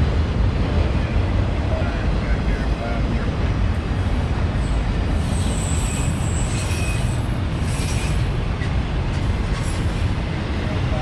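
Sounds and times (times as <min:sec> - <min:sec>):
freight train cars rumbling past: 0:00.0 - 0:11.0
high-pitched wheel squeal: 0:05.2 - 0:08.3.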